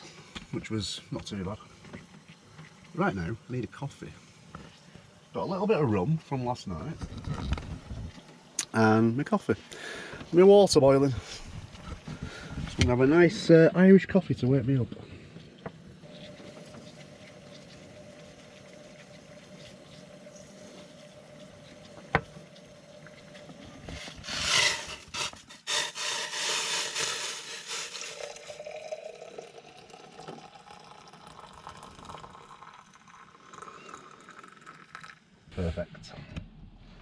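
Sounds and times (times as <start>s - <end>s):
faint steady hum: 0.0s - 37.0s
hot water poured into a mug: 24.0s - 35.3s.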